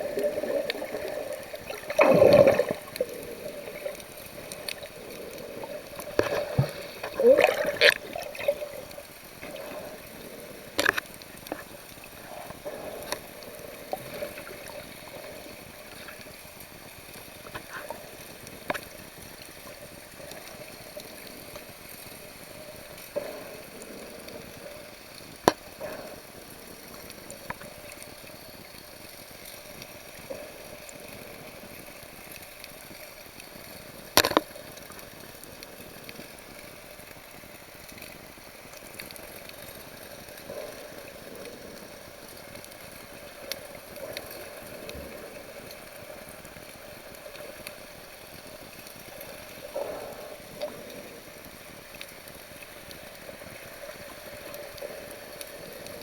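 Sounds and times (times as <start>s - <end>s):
sea water sloshing and bubbling: 0.0s - 56.0s
sharp clicks and pops: 10.6s - 11.8s, 34.1s - 34.6s.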